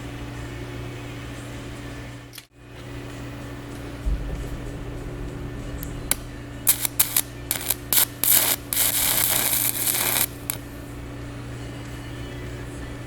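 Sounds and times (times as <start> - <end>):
steady low hum: 3.8 - 9.5
arc welding crackling: 6.1 - 10.6.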